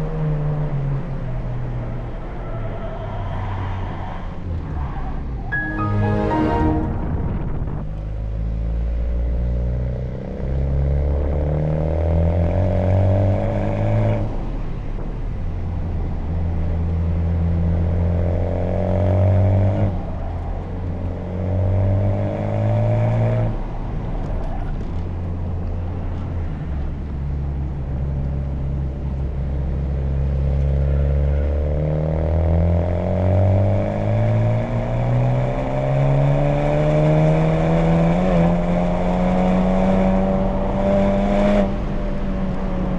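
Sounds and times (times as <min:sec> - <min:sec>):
car engine accelerating hard: 0:29.3 - 0:42.9.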